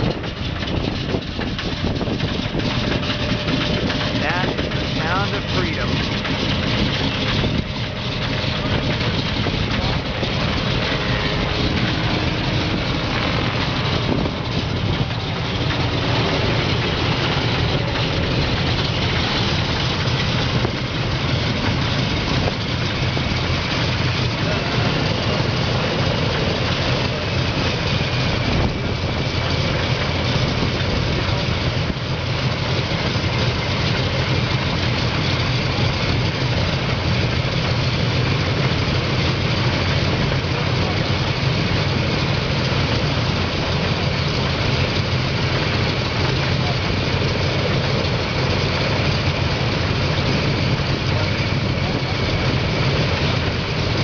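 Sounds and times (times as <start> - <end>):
propeller noise: 0.0 - 54.0
radial aircraft engines rumbling: 0.0 - 54.0.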